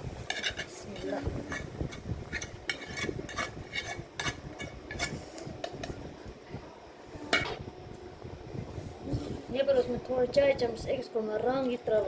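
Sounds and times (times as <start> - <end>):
metal spoon scraping a pan: 0.0 - 6.0.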